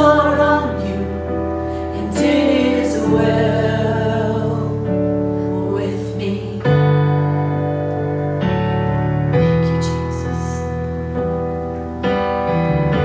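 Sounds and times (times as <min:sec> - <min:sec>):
person singing: 0:00.0 - 0:07.2
held keyboard chords: 0:00.0 - 0:13.0.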